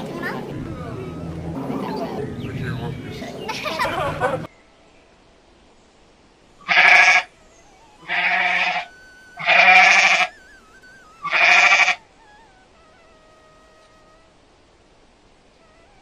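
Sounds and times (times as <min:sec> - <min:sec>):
goat bleating: 0:06.7 - 0:10.4, 0:11.2 - 0:14.2.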